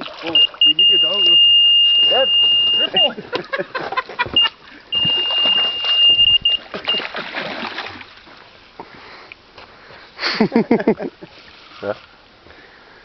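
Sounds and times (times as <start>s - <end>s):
high-pitched electronic alarm tone: 0.3s - 3.2s, 4.4s - 7.1s
fish splashing in water: 4.9s - 8.6s.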